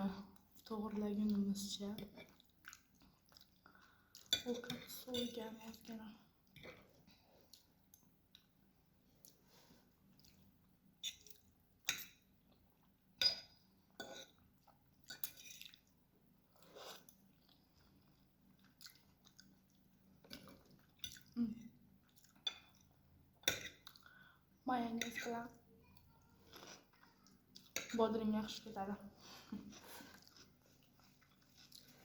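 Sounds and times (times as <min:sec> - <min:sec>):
person chewing food: 0:02.3 - 0:04.3, 0:06.4 - 0:13.0, 0:13.7 - 0:24.4, 0:26.0 - 0:27.9, 0:29.4 - 0:32.0.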